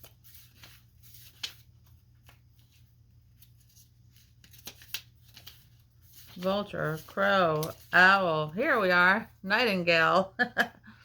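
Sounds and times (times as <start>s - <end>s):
paper pages turning: 0.0s - 9.0s.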